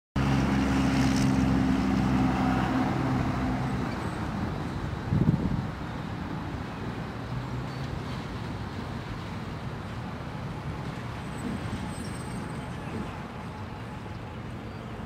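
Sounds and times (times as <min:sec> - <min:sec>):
faint engine hum: 0:00.2 - 0:15.0
low rumble of vehicle noise: 0:00.2 - 0:15.0.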